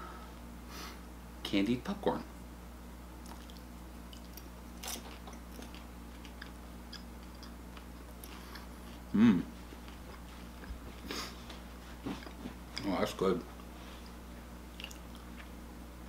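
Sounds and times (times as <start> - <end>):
person chewing popcorn: 3.2 - 15.6
loud throat sound: 9.1 - 9.5.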